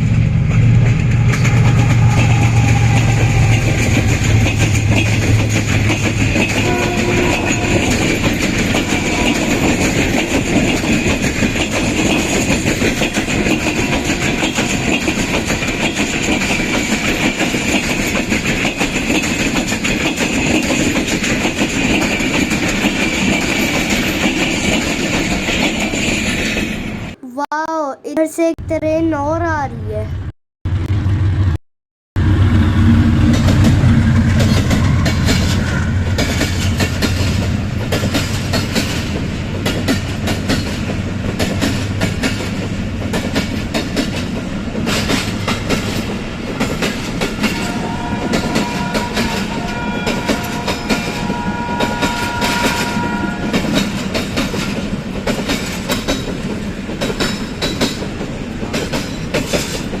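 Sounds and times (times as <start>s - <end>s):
train wheels clattering over rail joints: 53.6s - 60.0s.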